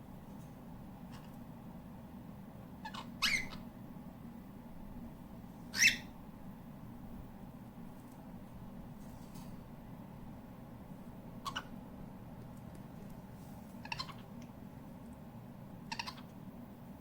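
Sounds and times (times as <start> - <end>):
cockatiel chirping: 2.8 - 3.7, 5.7 - 6.1, 11.4 - 11.7, 13.8 - 14.2, 15.9 - 16.3.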